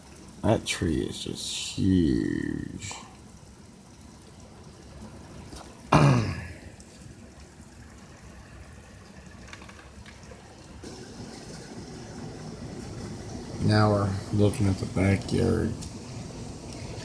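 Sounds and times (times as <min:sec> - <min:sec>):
heavy rain pouring: 0:00.0 - 0:17.0
throat clearing: 0:05.9 - 0:06.6.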